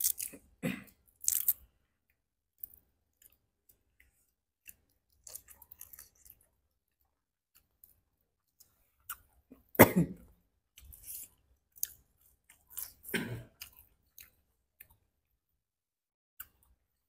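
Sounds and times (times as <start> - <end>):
wet chewing and crunching: 0.0 - 0.5, 1.1 - 1.7, 2.5 - 9.4, 10.7 - 15.1.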